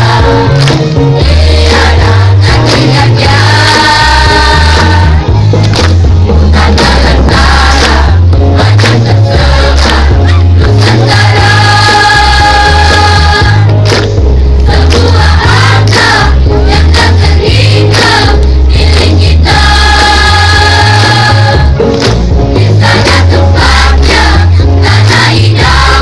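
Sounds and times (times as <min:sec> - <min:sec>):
heavy low bass: 0:00.0 - 0:26.0
choir singing sustained notes: 0:01.2 - 0:05.3, 0:06.6 - 0:13.7, 0:14.7 - 0:21.7.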